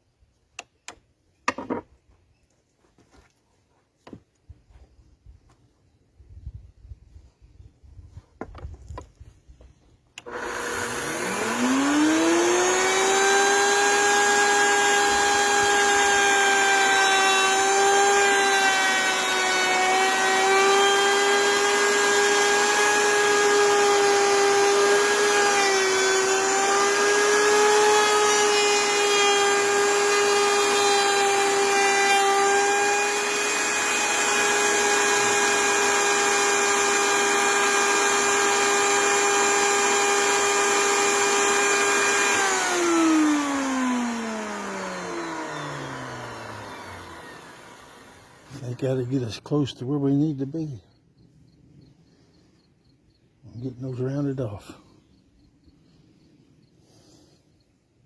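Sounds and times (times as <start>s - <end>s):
electric router whine: 10.2s - 49.2s.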